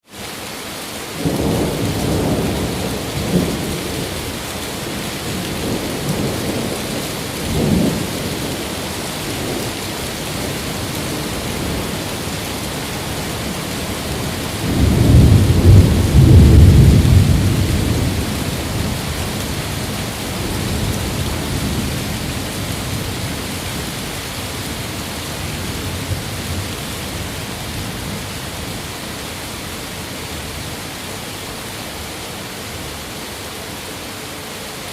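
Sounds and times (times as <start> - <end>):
heavy rain: 0.0 - 34.9
rolling thunder: 10.4 - 28.8.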